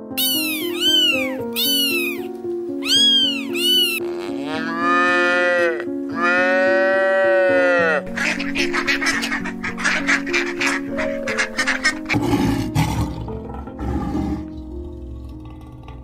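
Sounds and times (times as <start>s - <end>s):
light background music: 0.0s - 16.0s
cat meowing: 0.2s - 6.8s
cow mooing: 3.5s - 8.1s.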